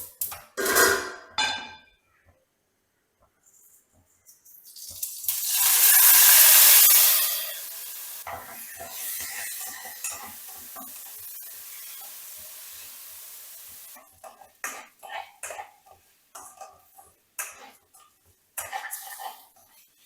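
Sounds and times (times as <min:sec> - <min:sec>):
food sizzling in hot oil: 0:04.6 - 0:17.6.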